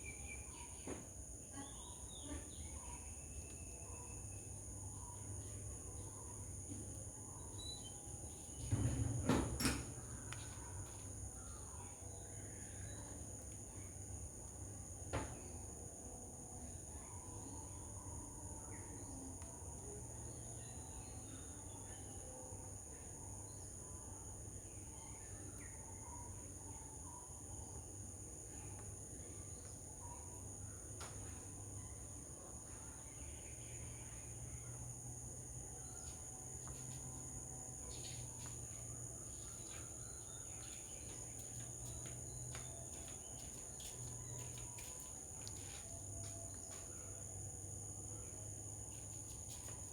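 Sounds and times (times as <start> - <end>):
faint bird chirps: 0.0 - 9.0, 16.6 - 47.3
insects droning: 0.0 - 49.9
low background hum: 0.0 - 49.9.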